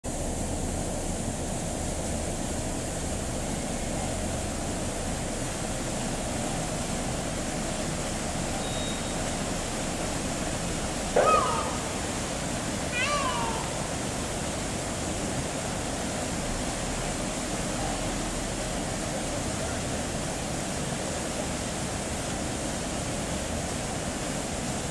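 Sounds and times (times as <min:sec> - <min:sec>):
wading bird call: 0:10.7 - 0:14.6.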